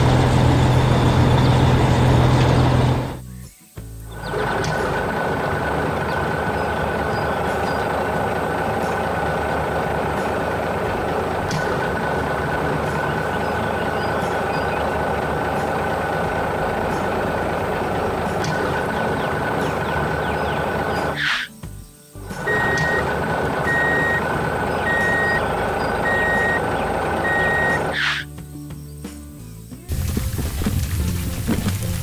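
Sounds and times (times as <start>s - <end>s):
heavy engine running: 0.0s - 3.3s, 3.9s - 28.2s, 29.9s - 32.0s
constant high-pitched tone: 22.3s - 28.1s.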